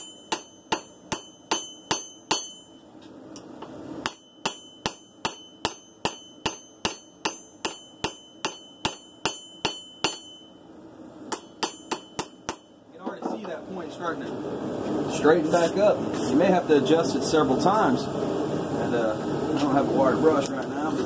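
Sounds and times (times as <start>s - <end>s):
hammer striking steel on anvil: 0.0s - 13.5s.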